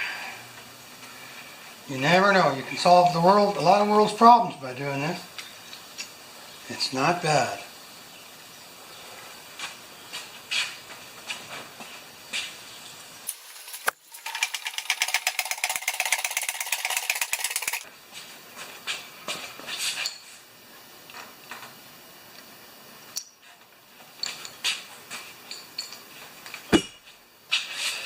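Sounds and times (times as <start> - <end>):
metallic clinks of small parts: 13.3 - 17.8, 25.5 - 26.1.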